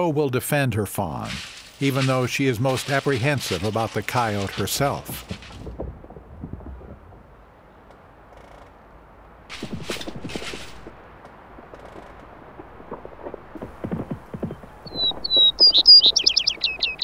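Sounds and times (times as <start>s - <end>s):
soft low thumps: 4.9s - 7.5s
songbird chirping: 14.0s - 17.0s.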